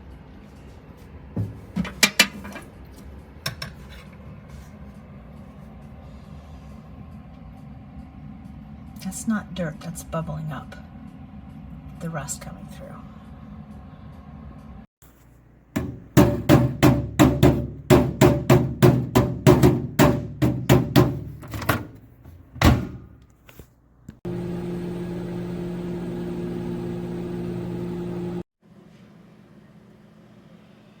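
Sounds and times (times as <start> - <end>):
sharp knocks: 15.8 - 21.3
microwave oven humming: 24.2 - 31.0.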